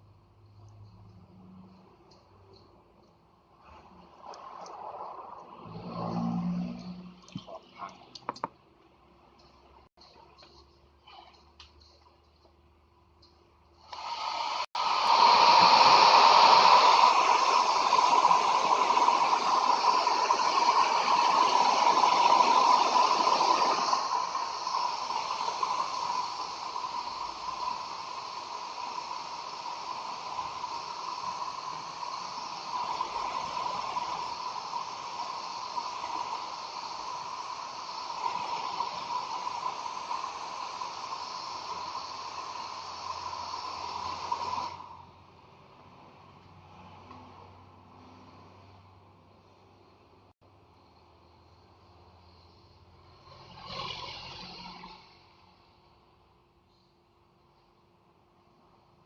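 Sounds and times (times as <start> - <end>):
hissing rushing noise: 3.5 - 8.4, 13.8 - 48.8.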